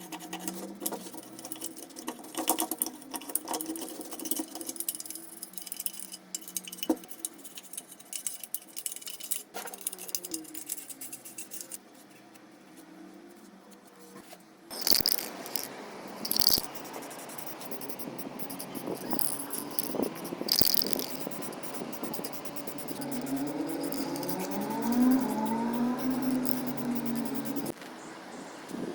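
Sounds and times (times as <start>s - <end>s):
small metal parts clicking: 0.0s - 11.8s, 14.7s - 27.7s
sharp metallic clinks: 14.7s - 27.7s.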